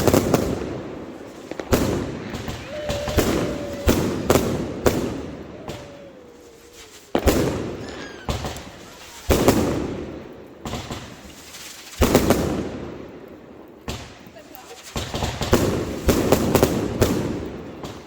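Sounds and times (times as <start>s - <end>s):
firework whistle: 0.0s - 11.2s
fireworks bursting with echoing rumble: 0.0s - 18.0s.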